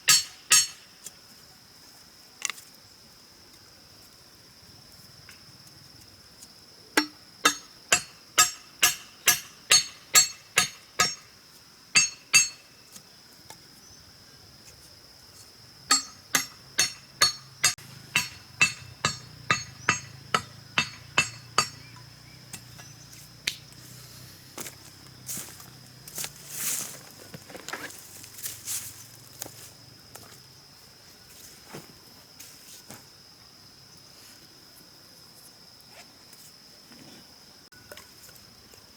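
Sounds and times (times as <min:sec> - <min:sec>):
hand tool striking blows: 0:00.0 - 0:00.9, 0:07.0 - 0:11.3, 0:12.0 - 0:12.7, 0:15.9 - 0:23.6
high insect drone: 0:00.0 - 0:38.9
scattered knocks: 0:15.9 - 0:21.8.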